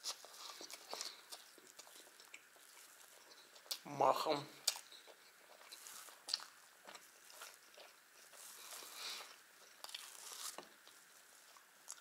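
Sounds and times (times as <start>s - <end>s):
wet chewing clicks and smacks: 0.5s - 3.9s, 4.6s - 8.4s
pancake rustling on a plate: 4.9s - 11.7s.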